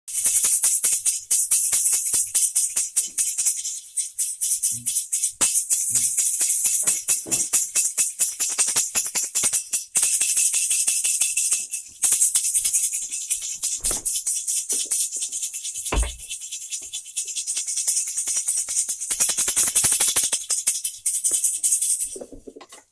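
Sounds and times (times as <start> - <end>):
rattling hiss of rapid clicks: 5.4 - 22.2
dull thumps: 15.9 - 16.3.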